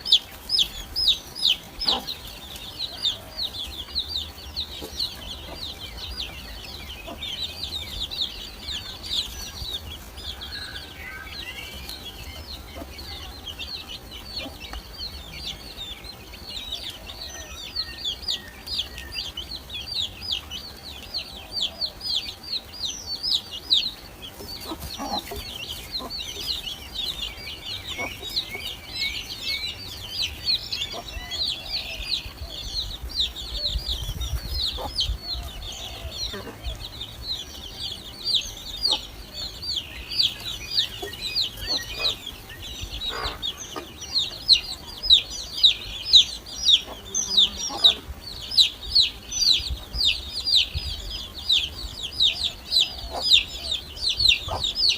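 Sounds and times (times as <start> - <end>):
nestlings begging chirps: 0.0 - 54.9.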